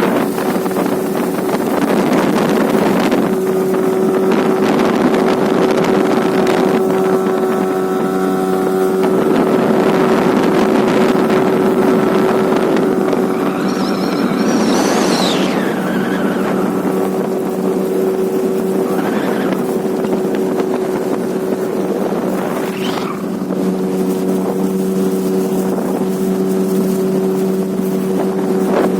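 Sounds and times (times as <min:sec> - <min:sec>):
outboard motor running: 0:00.0 - 0:28.9
water rushing: 0:00.0 - 0:28.9
wind on microphone: 0:00.0 - 0:28.9
whooshing surge: 0:12.8 - 0:18.4, 0:21.4 - 0:24.4.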